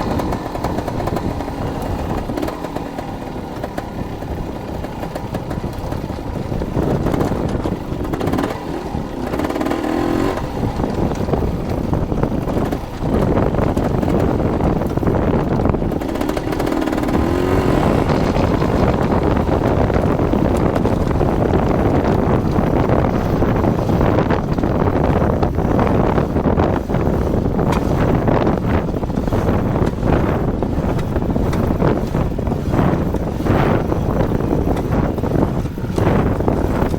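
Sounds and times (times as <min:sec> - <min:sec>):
dirt bike engine running: 0:00.0 - 0:36.9
wind rush on microphone: 0:00.0 - 0:36.9.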